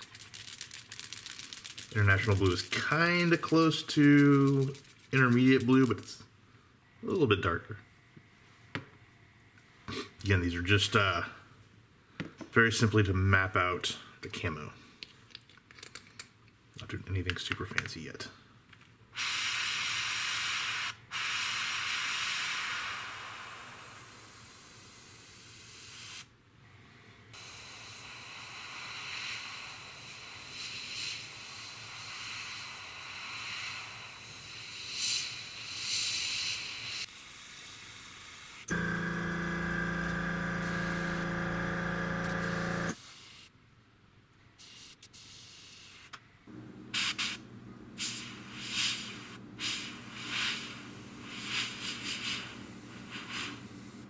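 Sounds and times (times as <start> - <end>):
airbrush spraying hiss: 19.2 - 26.3, 27.4 - 38.8, 40.1 - 43.5, 44.6 - 46.1, 47.0 - 47.4, 48.0 - 54.0
air compressor motor humming: 38.7 - 43.0.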